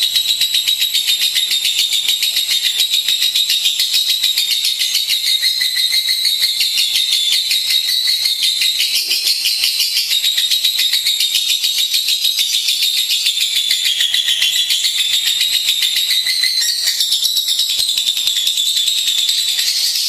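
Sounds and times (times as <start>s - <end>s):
lovebird chattering trill: 0.0s - 20.0s.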